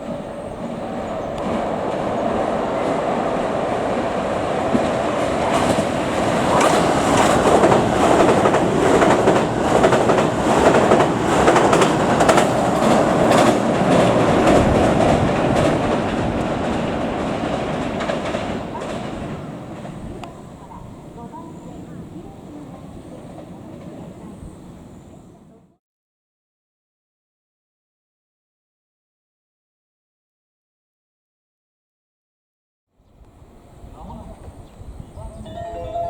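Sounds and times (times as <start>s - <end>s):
electric train passing at speed: 0.0s - 25.7s, 33.2s - 36.0s
train wheels clacking over rail joints: 4.6s - 20.8s.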